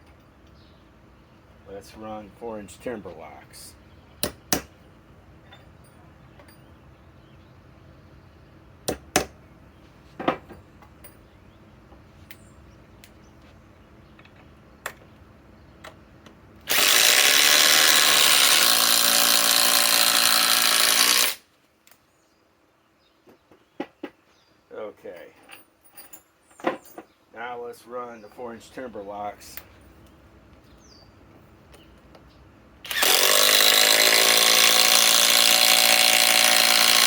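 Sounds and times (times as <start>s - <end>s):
impact driver hammering screw: 16.7s - 21.4s, 32.9s - 37.0s.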